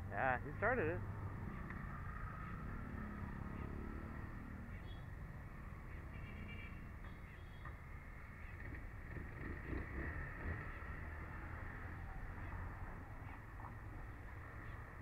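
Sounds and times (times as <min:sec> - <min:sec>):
motorcycle engine running: 0:01.0 - 0:12.7.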